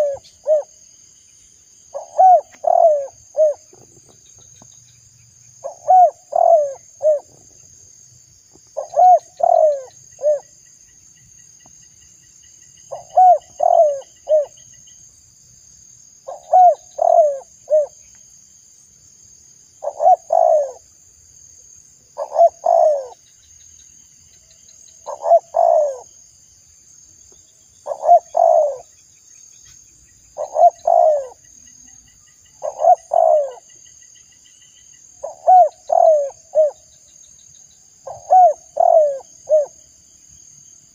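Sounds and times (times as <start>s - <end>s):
dove cooing: 0.0s - 0.7s, 1.9s - 3.9s, 5.6s - 7.6s, 8.8s - 10.5s, 12.9s - 14.6s, 16.3s - 18.0s, 19.8s - 20.9s, 22.2s - 23.2s, 25.0s - 26.1s, 27.8s - 28.9s, 30.4s - 31.4s, 32.6s - 33.7s, 35.2s - 36.8s, 38.0s - 39.8s.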